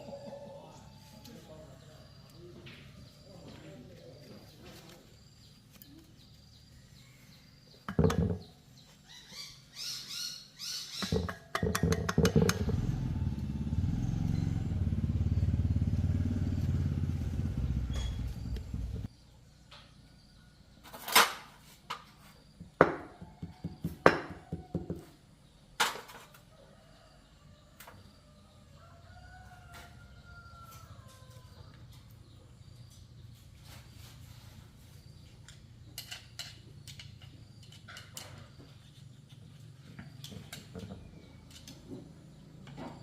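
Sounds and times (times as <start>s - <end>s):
sharp knocks and clicks: 7.8s - 8.6s, 11.0s - 13.0s
small motorcycle engine running: 12.2s - 19.1s.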